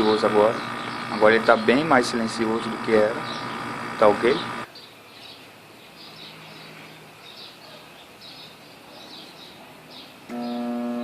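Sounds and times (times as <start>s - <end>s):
loud electrical hum: 0.0s - 4.7s, 10.3s - 11.0s
bird chirping: 0.0s - 10.7s.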